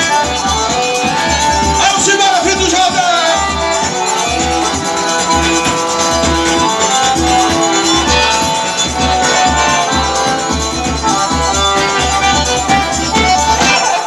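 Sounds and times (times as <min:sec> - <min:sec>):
steady bass beat: 0:00.0 - 0:13.7
live band playing: 0:00.0 - 0:14.0.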